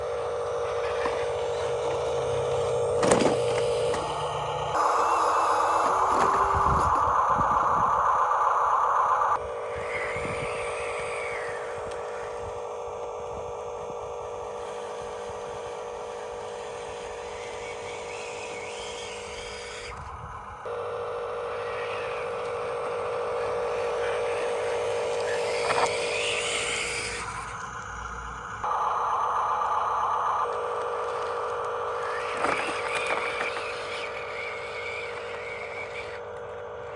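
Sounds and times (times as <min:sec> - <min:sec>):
electric motors whining: 0:00.0 - 0:36.9.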